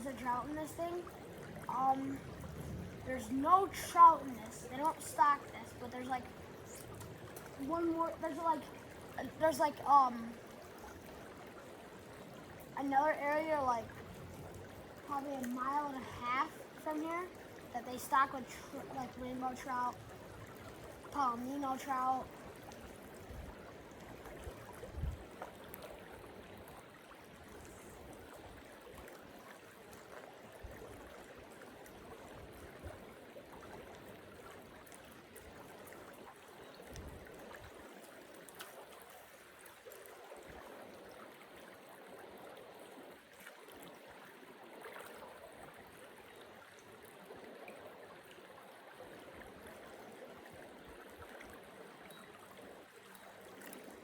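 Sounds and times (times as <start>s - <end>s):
water trickling over stones: 0.0s - 54.0s.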